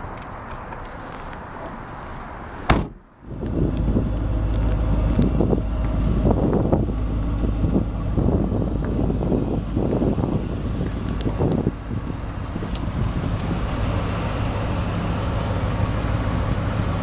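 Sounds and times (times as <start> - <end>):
car trunk lid slamming: 2.7 - 3.0
wind buffeting microphone: 2.7 - 17.0.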